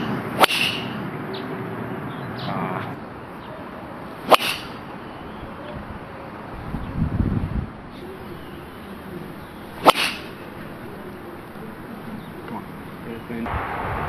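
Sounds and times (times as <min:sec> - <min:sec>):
golf club striking ball: 0:00.4 - 0:01.1, 0:04.2 - 0:05.0, 0:08.1 - 0:11.8.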